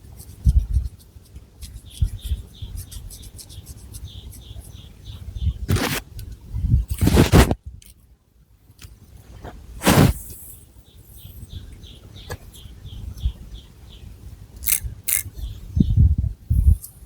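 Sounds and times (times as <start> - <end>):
fingernails scratching hair: 5.7 - 6.0, 6.9 - 7.6, 9.8 - 10.2.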